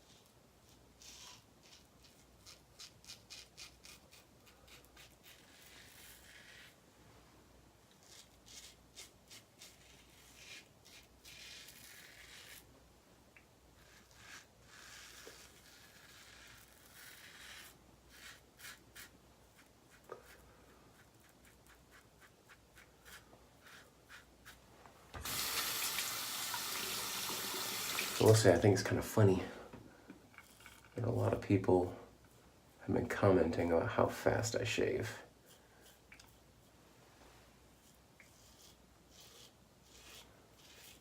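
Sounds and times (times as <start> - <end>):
razor scraping stubble: 0.1 - 6.8, 7.9 - 12.7, 13.8 - 24.6, 25.2 - 29.1, 30.3 - 31.7, 37.8 - 41.0.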